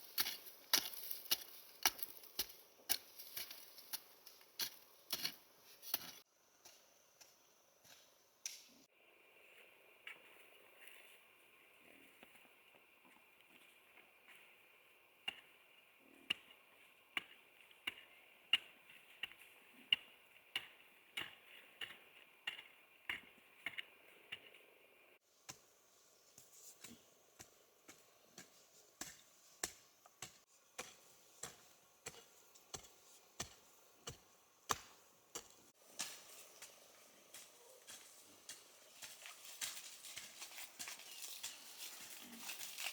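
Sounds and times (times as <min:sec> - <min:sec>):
hand tool chopping wood: 0:00.0 - 0:06.2, 0:26.8 - 0:36.3.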